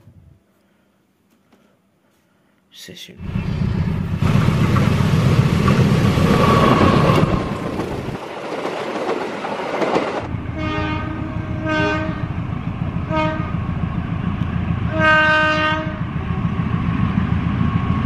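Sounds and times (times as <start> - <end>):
train rumbling past: 3.2 - 18.0
locomotive horn blasts: 10.5 - 12.3, 13.1 - 13.6, 14.9 - 16.0.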